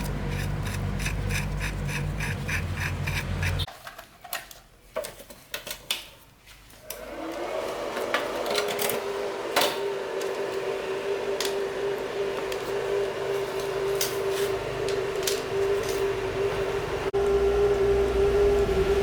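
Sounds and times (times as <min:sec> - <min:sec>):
electric motor humming: 0:09.0 - 0:19.0.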